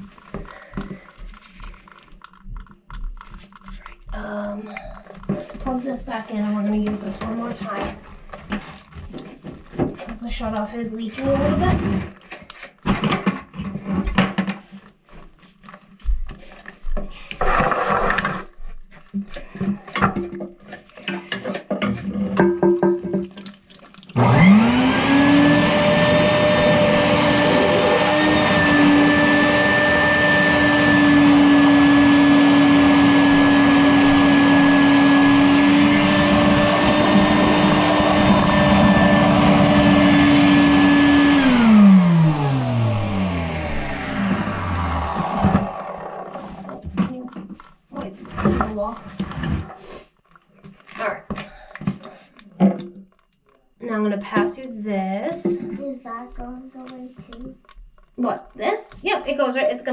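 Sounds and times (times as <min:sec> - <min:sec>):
clatter and handling sounds: 0:00.0 - 0:24.2, 0:46.3 - 0:59.2
wet dry vacuum motor whining: 0:24.2 - 0:46.9.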